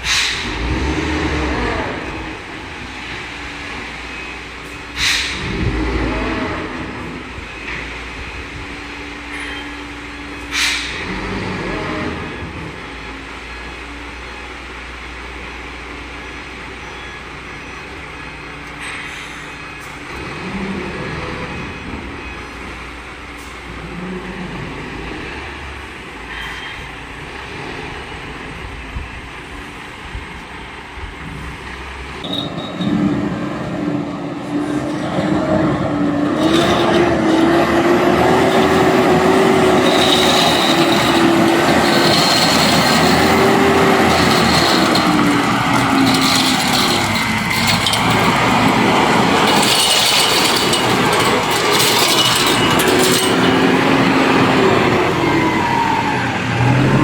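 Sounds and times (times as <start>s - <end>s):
truck engine under load: 0.0s - 16.6s, 31.4s - 57.0s.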